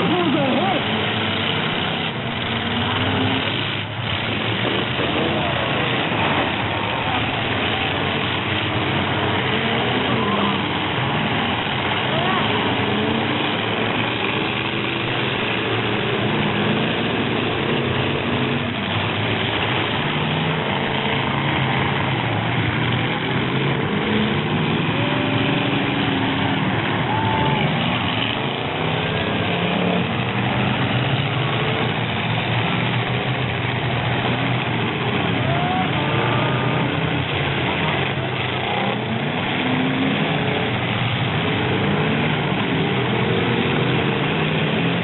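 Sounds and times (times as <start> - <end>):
truck engines revving: 0.0 - 45.0.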